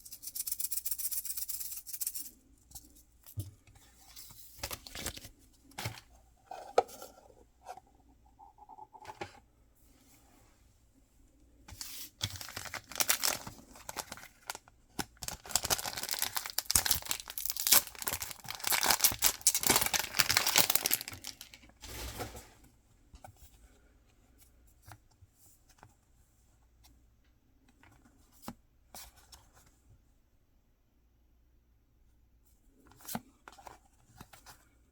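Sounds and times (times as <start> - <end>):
packaging tearing and crinkling: 12.3 - 14.6, 15.2 - 22.0.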